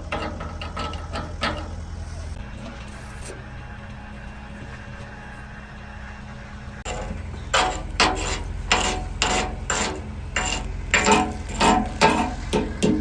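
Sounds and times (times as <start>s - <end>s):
steady low hum: 0.0s - 13.0s
hand tool striking steel parts: 6.9s - 13.0s.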